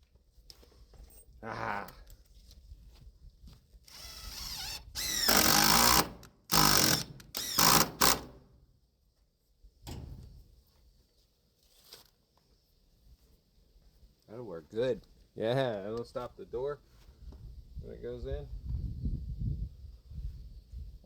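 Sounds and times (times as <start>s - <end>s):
cordless drill driving screws: 3.9s - 8.4s.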